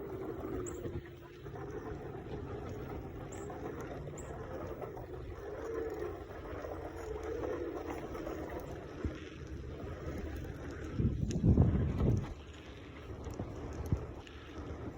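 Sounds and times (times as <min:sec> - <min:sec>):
bicycle rolling rumble: 0:00.0 - 0:14.9
wavering hum: 0:00.0 - 0:14.9
rushing wind: 0:10.0 - 0:12.4.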